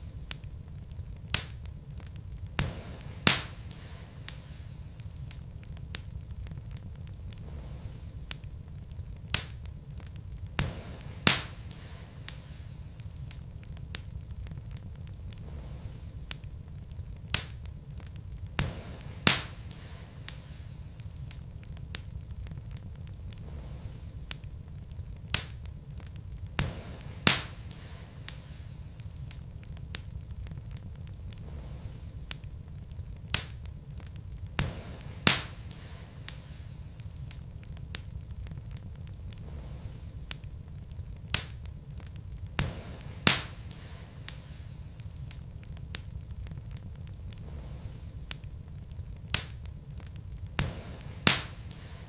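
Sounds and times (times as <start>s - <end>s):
fire rumbling in fireplace: 0.0s - 52.0s
small fire crackles: 0.0s - 52.0s
loud sharp pops from logs: 1.2s - 8.6s, 9.2s - 16.6s, 17.2s - 24.5s, 25.2s - 32.5s, 33.2s - 40.5s, 41.2s - 47.6s, 49.2s - 52.0s.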